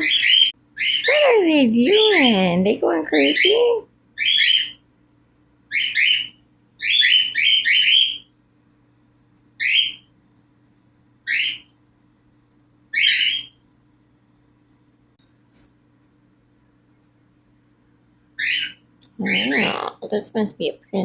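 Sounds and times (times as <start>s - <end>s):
cockatiels giving shrill calls: 4.2s - 4.8s, 5.7s - 8.2s, 12.9s - 13.5s, 18.4s - 19.8s.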